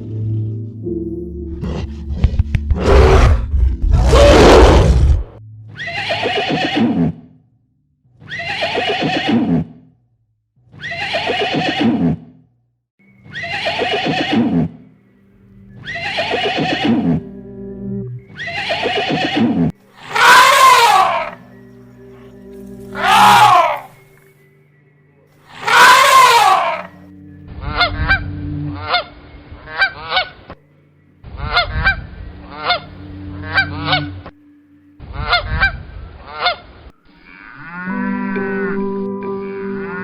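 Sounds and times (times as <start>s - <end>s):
animal call sweeping up and down: 15.8s - 17.2s, 18.3s - 21.4s, 22.9s - 24.0s, 25.5s - 27.0s
animal calls falling in pitch: 20.0s - 21.4s, 22.9s - 24.0s, 25.6s - 26.9s.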